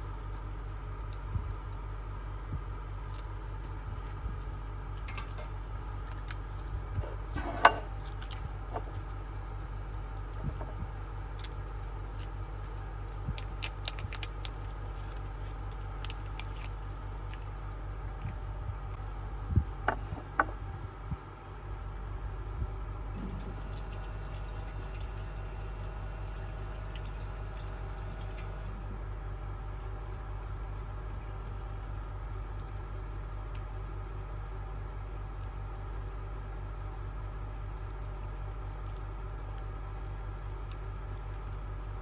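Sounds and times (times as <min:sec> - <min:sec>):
steady machine hum: 0:15.6 - 0:42.0.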